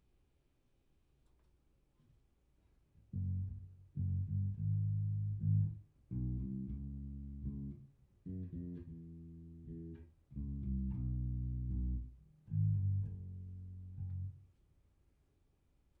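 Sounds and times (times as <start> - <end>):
electric bass low notes: 3.1 - 14.4.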